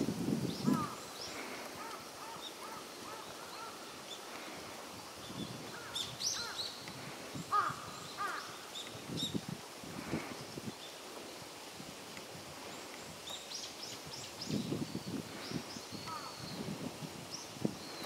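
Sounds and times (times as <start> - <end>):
wild birds chirping: 0.4 - 9.4, 12.6 - 18.0.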